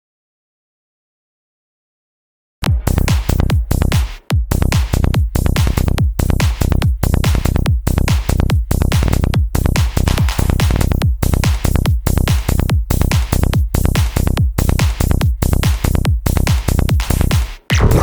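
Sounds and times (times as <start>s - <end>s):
psytrance music: 17.7s - 18.0s
synth effects: 17.7s - 18.0s.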